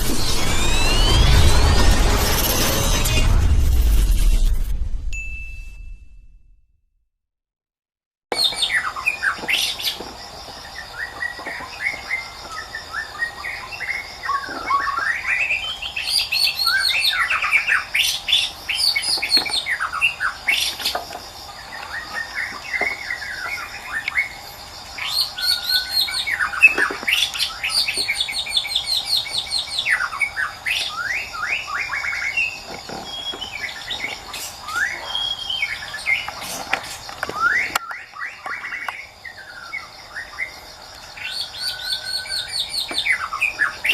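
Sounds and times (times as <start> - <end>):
high-pitched hum: 0.0 - 6.4
bird singing whistles and trills: 8.4 - 9.8, 10.9 - 21.0, 25.0 - 36.6, 37.3 - 40.6, 41.2 - 43.9.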